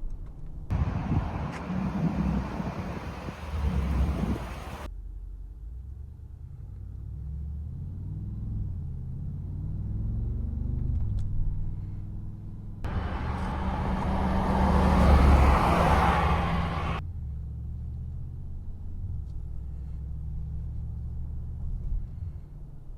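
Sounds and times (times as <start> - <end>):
car engine accelerating: 0.7 - 4.9, 12.9 - 17.0
rush of wind and road noise: 0.7 - 4.9, 12.9 - 17.0.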